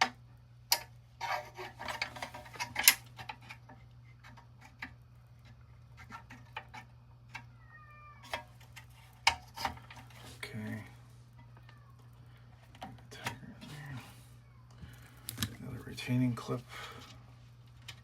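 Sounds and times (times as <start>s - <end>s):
sharp clicks and scraping: 0.7s - 7.5s.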